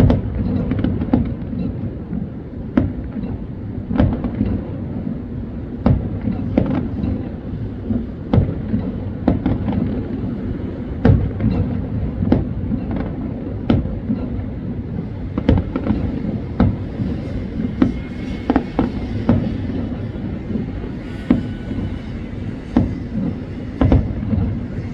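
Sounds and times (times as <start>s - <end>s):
fireworks banging: 2.6s - 24.9s
low rumble: 14.8s - 24.9s.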